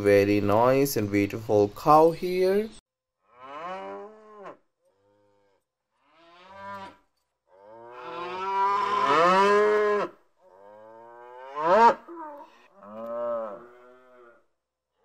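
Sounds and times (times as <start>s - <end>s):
calves mooing: 3.3s - 14.4s.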